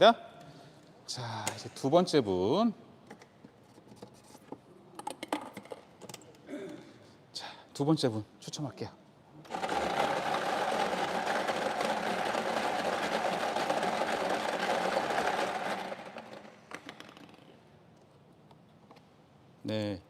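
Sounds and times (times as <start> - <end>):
lottery machine motor hum: 9.4 - 16.6
lottery balls rattling: 9.5 - 17.6.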